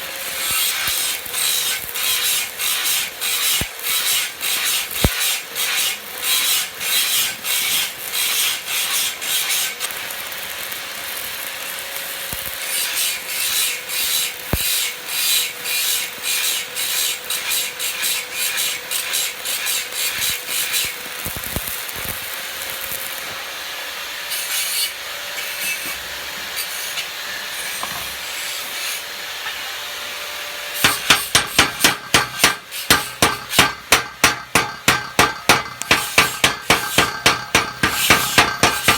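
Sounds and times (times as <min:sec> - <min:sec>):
hand tool scraping metal: 0:26.6 - 0:29.6, 0:30.8 - 0:38.9
hammer blows on metal: 0:30.8 - 0:38.9.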